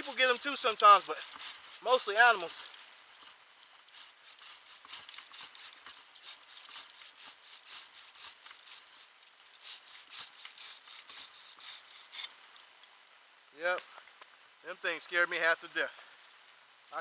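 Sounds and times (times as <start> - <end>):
scratchy rubbing strokes: 0.0 - 12.3.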